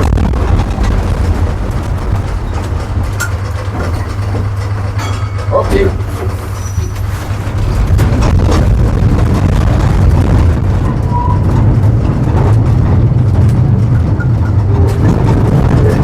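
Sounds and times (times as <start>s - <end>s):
tram rumbling on track: 0.0s - 16.0s.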